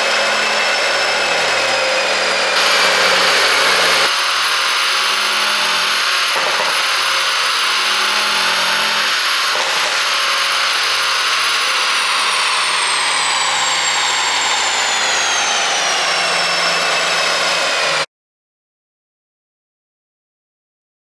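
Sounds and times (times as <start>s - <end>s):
high whine: 2.4s - 18.0s.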